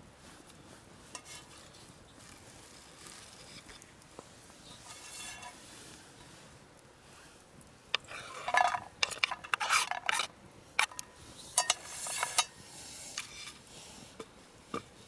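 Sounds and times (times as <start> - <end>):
utensils clinking against cookware: 8.0 - 12.5.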